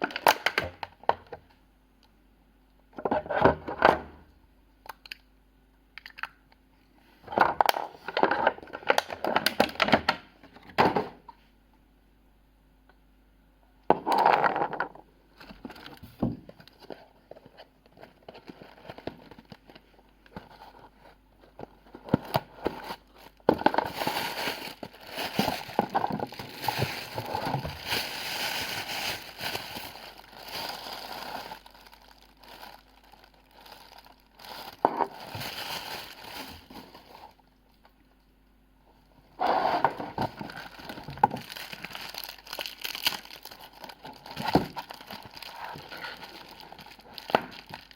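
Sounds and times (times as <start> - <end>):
packaging crinkling and rustling: 15.4 - 38.0, 39.4 - 47.9.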